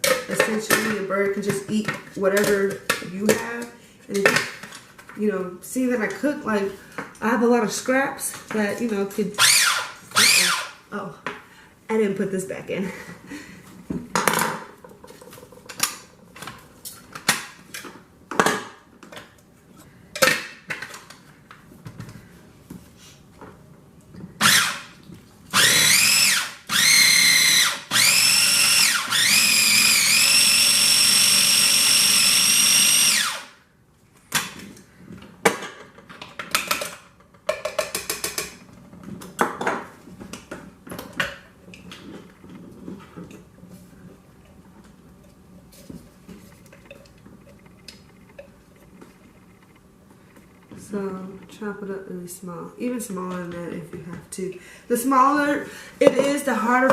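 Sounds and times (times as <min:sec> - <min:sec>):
food processor motor whine: 0:09.4 - 0:10.8, 0:24.4 - 0:24.8, 0:25.5 - 0:33.6.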